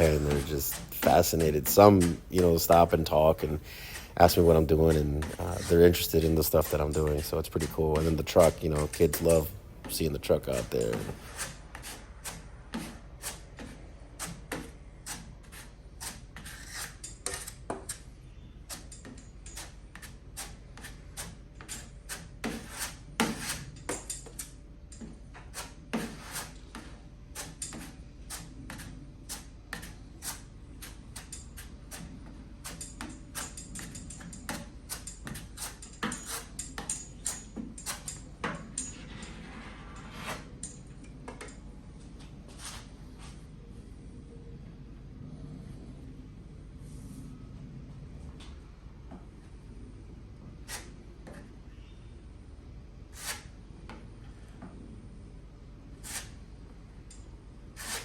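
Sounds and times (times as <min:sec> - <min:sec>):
plastic spreader scraping sheet metal: 0:00.0 - 0:13.4, 0:38.8 - 0:40.7, 0:57.8 - 0:58.0.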